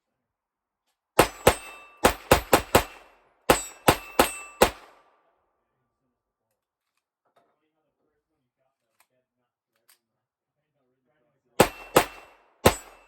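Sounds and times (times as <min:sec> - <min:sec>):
bullets ringing on steel plates: 0:01.2 - 0:04.8, 0:11.6 - 0:13.0
pistol shots: 0:01.2 - 0:05.0, 0:11.6 - 0:13.0.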